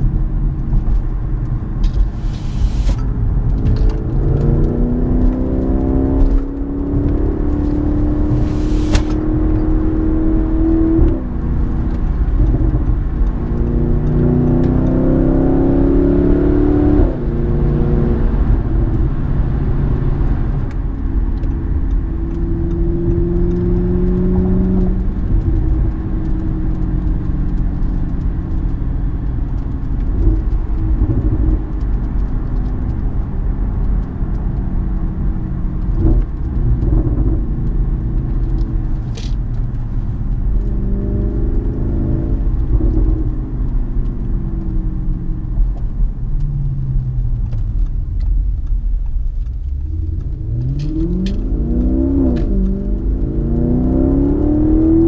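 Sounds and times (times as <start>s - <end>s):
car engine heard from cabin: 0.0s - 55.0s.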